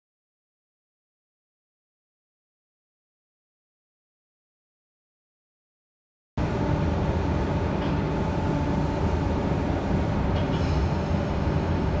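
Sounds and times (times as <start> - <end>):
faint steady whine: 6.4 - 12.0
train interior rumble: 6.4 - 12.0.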